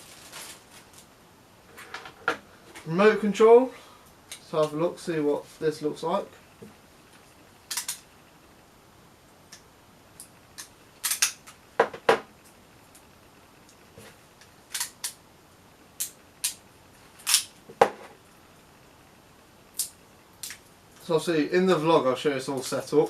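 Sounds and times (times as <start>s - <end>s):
plastic packaging crackling: 0.0s - 1.1s.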